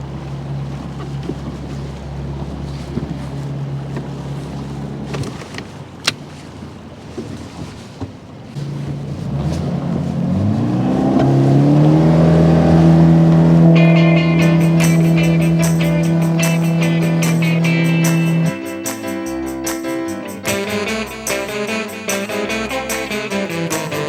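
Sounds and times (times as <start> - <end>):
boat motor running: 0.0 - 7.4, 8.0 - 24.0
motor throttling up: 10.3 - 18.6
music: 13.7 - 24.0.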